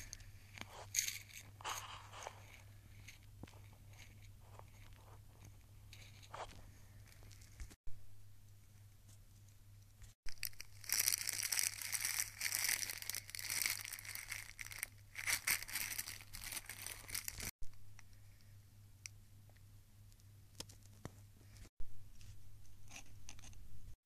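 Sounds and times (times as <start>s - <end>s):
packaging crinkling and rustling: 10.3s - 17.5s.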